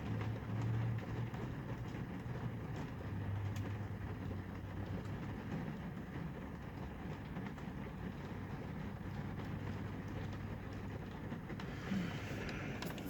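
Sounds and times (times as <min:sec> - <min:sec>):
vehicle engine rumble: 0:09.5 - 0:13.0.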